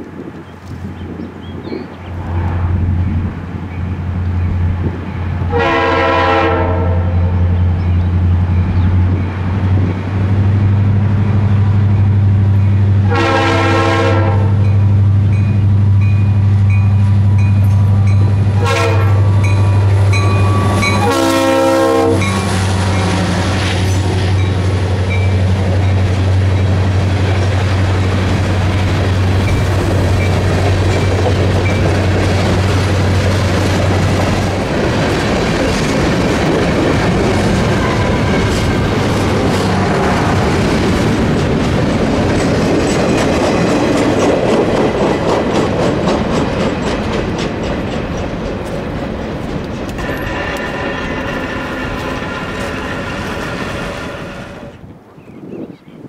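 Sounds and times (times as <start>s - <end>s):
train wheels rumbling on rail joints: 0.0s - 55.6s
locomotive air horn blasts: 5.5s - 7.4s, 13.0s - 14.7s, 17.9s - 23.1s, 37.7s - 38.6s, 50.0s - 54.9s.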